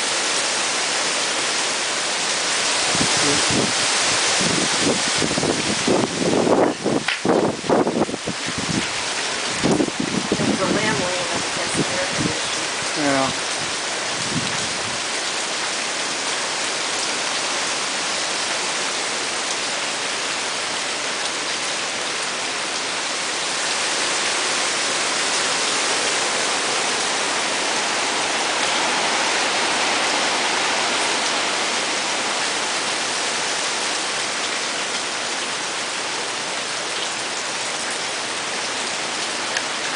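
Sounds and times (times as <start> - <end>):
heavy rain rushing: 0.0 - 39.9
wind: 0.0 - 39.9.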